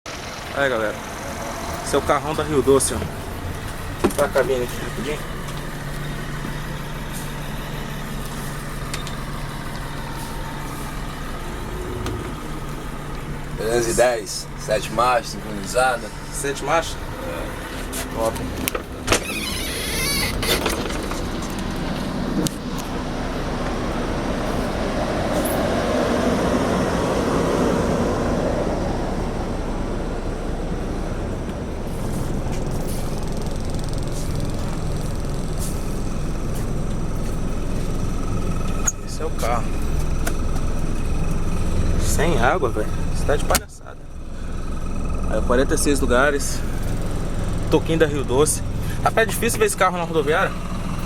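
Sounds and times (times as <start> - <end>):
coach engine idling: 0.1 - 51.0.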